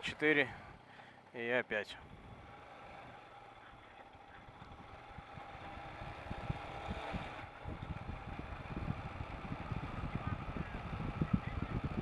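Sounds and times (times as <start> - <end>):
motorcycle engine running: 0.0 - 12.0
wind gusting on microphone: 4.8 - 12.0.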